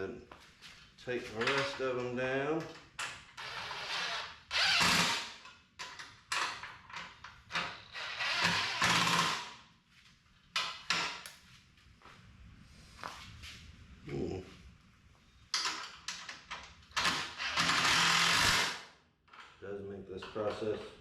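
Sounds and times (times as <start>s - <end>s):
cordless drill bursts: 3.4s - 5.4s, 8.0s - 9.5s, 17.0s - 18.9s.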